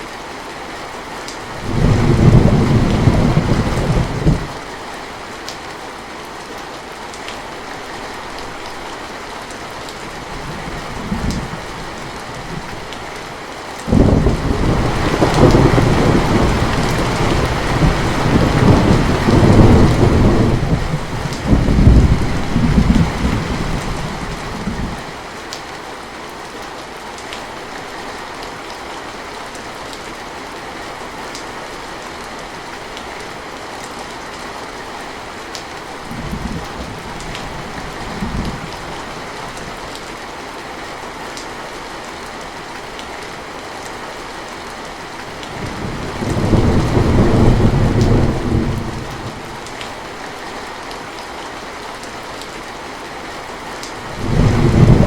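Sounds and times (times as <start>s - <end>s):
steady rain: 0.0s - 55.0s
thunder rumbling: 1.6s - 4.6s, 13.9s - 25.0s, 45.4s - 49.8s, 54.1s - 55.0s.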